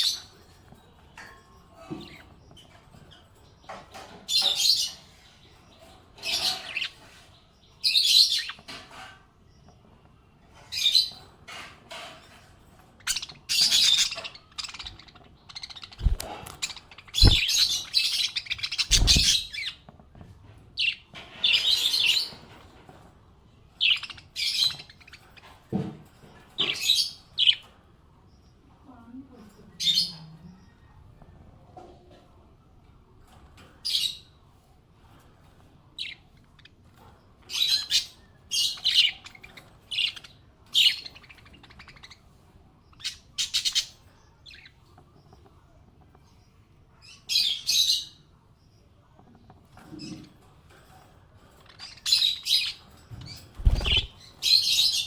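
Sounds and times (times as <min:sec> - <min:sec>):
small parrots chirping: 0:03.9 - 0:08.9, 0:13.0 - 0:19.9, 0:23.8 - 0:25.5, 0:37.5 - 0:42.3, 0:42.9 - 0:44.8, 0:51.6 - 0:55.0.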